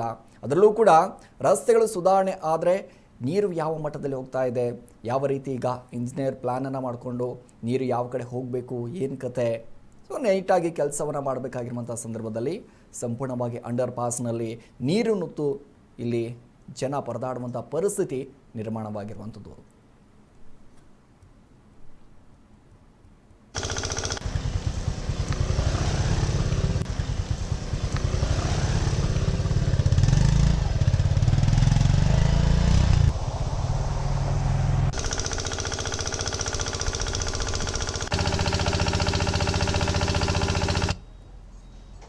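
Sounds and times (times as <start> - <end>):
motor vehicle engines running: 23.6 - 41.3.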